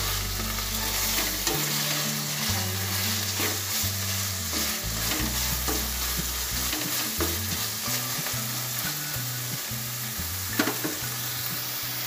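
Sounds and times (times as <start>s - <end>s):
spatula scraping on pan: 0.0s - 9.7s
food sizzling in a wok: 0.0s - 12.0s.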